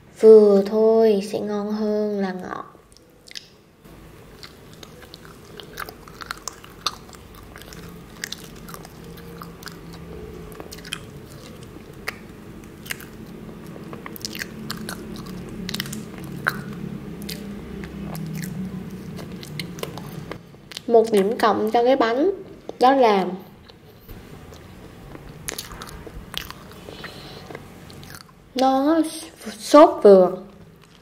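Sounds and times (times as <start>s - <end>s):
low steady hum: 0.0s - 31.0s
mouth clicks and smacks: 2.9s - 3.6s, 4.4s - 21.3s, 24.5s - 28.3s
person chewing: 2.9s - 21.4s, 23.4s - 28.6s, 30.6s - 31.0s.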